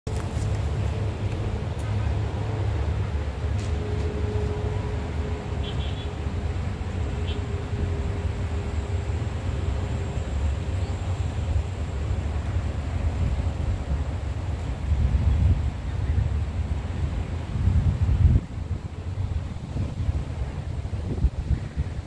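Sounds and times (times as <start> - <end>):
wind buffeting microphone: 6.2 - 22.0.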